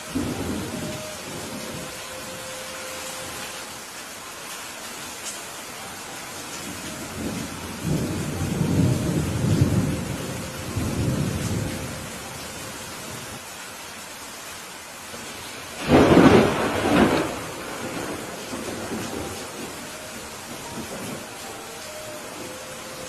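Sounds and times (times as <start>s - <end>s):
thunder rumbling: 0.0s - 3.6s, 6.6s - 13.4s, 15.7s - 23.0s
steady rain: 0.0s - 23.0s
sharp thunderclap: 15.8s - 19.2s.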